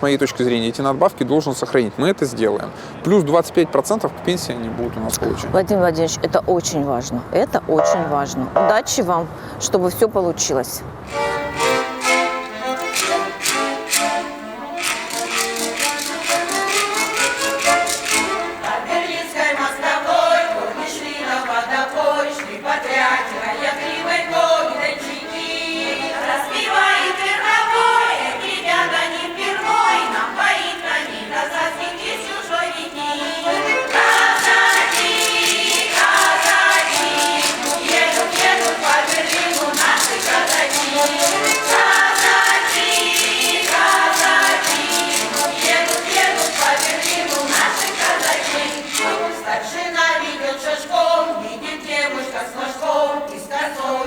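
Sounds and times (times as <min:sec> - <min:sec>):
choir singing with accompaniment: 0:11.1 - 0:54.0.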